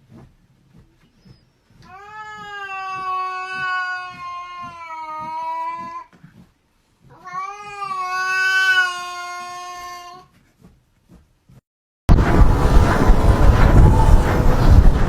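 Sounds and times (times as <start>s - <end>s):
cat yowling: 1.8s - 6.1s, 7.1s - 10.2s.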